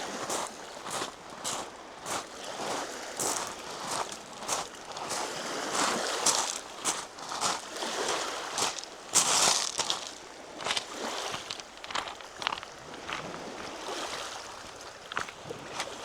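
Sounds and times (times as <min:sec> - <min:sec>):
steady outdoor hiss: 0:00.0 - 0:15.2
footsteps on a trail: 0:03.2 - 0:07.8, 0:08.6 - 0:13.8, 0:15.0 - 0:16.0.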